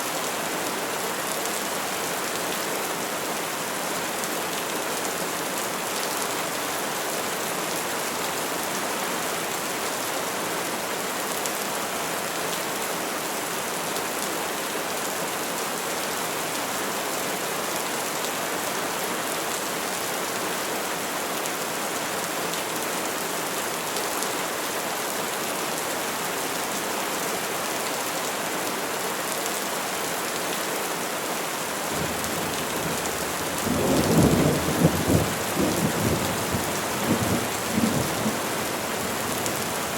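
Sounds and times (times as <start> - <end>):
rain pattering on leaves: 31.8 - 39.9.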